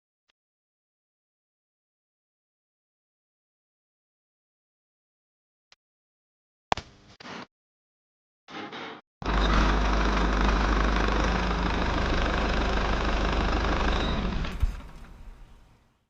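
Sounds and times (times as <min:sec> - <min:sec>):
small engine rumbling: 0:09.2 - 0:15.9.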